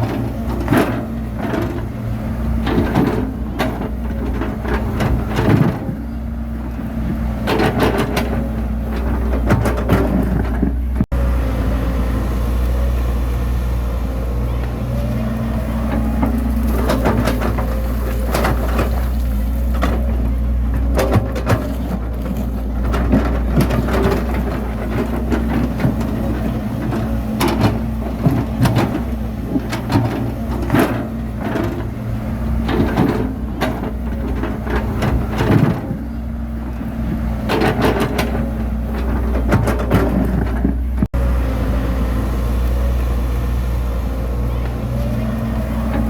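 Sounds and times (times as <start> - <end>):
bulldozer engine running: 0.0 - 46.0
metal clanks and knocks: 7.4 - 11.1, 15.6 - 36.2, 37.0 - 41.1.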